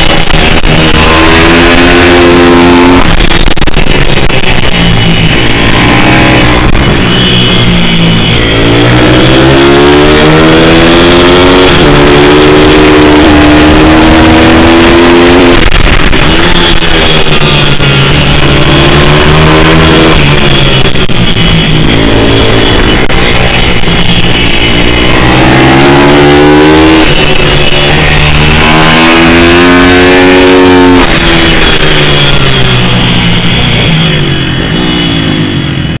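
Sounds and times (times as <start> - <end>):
small motorbike engine revving: 0.0 - 36.0.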